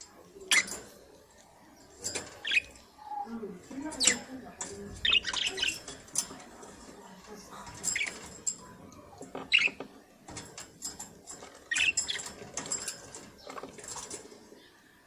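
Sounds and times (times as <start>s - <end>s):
light clicks and scratching: 0.0s - 15.0s
budgerigars chirping: 2.4s - 2.9s, 5.0s - 5.9s, 11.7s - 12.3s.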